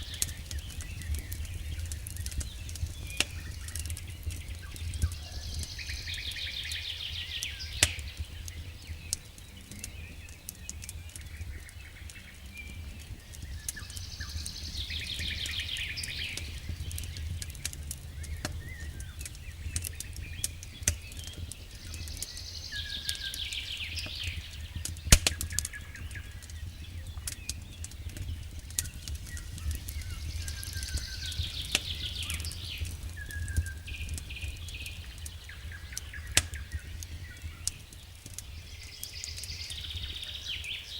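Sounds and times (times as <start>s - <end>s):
songbird singing: 0.0s - 40.9s
wood fire crackling and popping: 0.0s - 40.9s.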